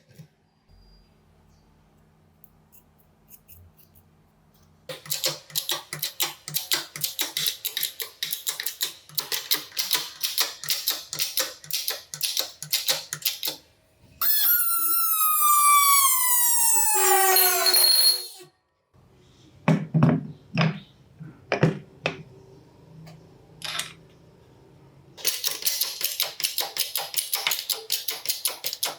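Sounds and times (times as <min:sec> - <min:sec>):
falling pitched whine: 0:14.2 - 0:18.5.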